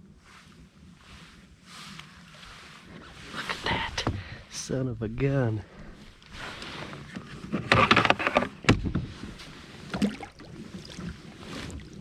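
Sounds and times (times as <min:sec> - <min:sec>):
water splashing: 0:09.2 - 0:12.0.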